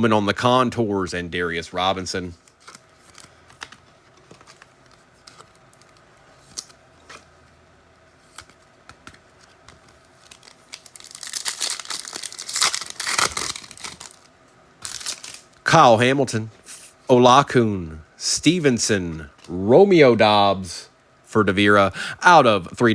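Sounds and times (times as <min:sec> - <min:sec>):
foil wrapper crinkling: 0:09.5 - 0:15.5.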